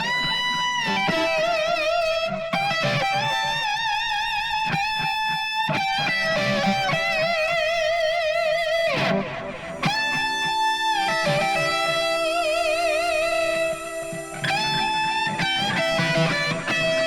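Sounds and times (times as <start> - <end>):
electric guitar long notes: 0.0 - 17.0.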